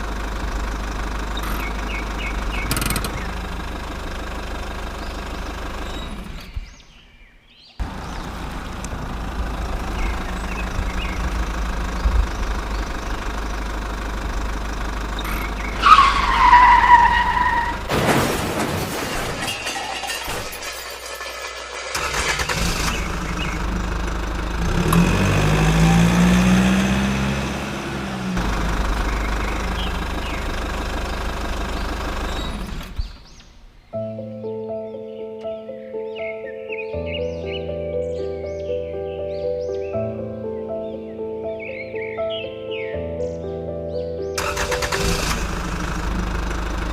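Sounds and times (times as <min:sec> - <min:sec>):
engine running: 0:00.0 - 0:33.8, 0:44.3 - 0:46.9
falling squeal: 0:01.4 - 0:03.3, 0:15.2 - 0:23.1, 0:25.4 - 0:26.8.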